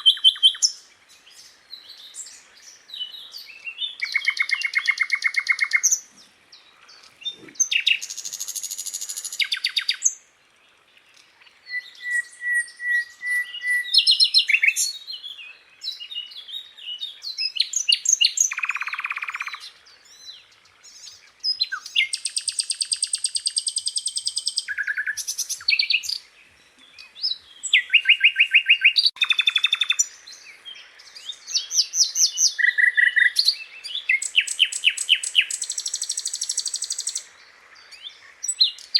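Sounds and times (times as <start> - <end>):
flycatcher singing trills: 11.6 - 26.3, 27.0 - 38.9.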